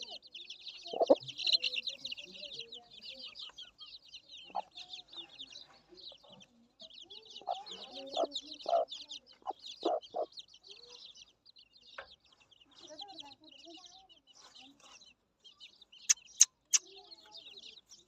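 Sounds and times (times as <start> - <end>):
chickens clucking: 0.0 - 10.9
chicks chirping: 0.0 - 18.0.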